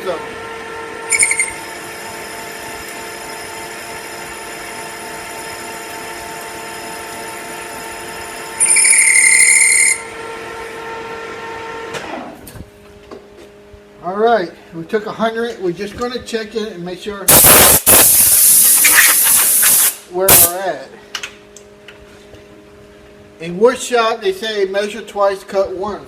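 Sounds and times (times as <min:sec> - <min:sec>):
metal lathe whining: 0:00.0 - 0:11.8
cutting tool squealing: 0:01.1 - 0:02.4, 0:08.1 - 0:10.2, 0:18.8 - 0:19.6.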